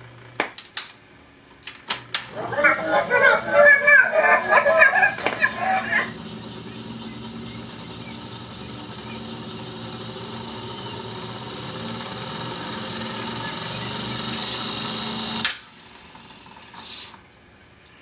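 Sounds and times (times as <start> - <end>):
recorder motor humming: 2.3 - 15.9.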